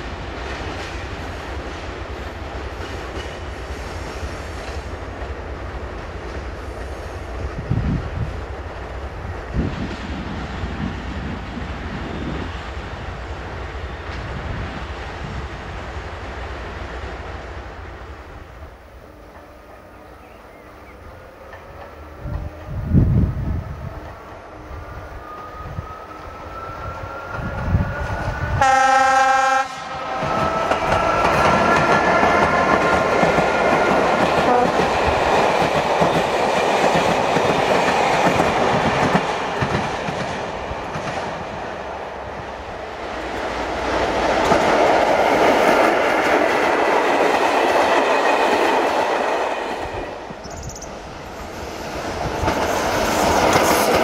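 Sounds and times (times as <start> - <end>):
train coaches rumbling and clattering: 0.0 - 54.0
locomotive whine: 9.0 - 36.5
train horn: 25.1 - 31.0, 34.4 - 35.0.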